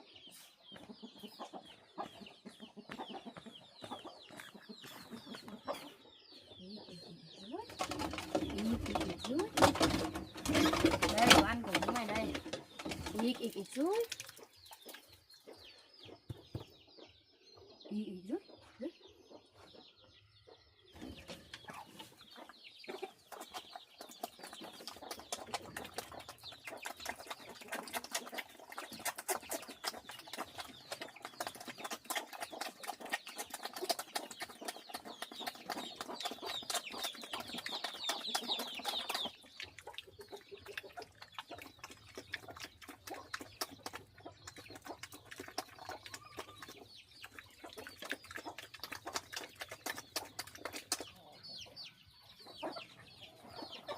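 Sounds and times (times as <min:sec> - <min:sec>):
chickens clucking: 0:00.0 - 0:53.9
beaks pecking at feed: 0:06.9 - 0:15.3, 0:21.0 - 0:53.9.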